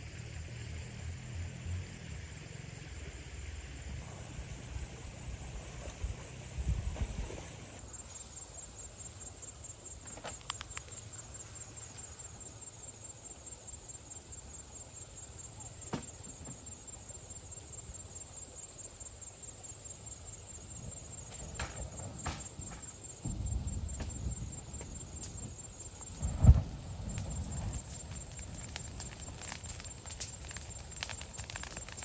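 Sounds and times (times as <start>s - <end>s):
insect trilling: 22.2s - 32.0s.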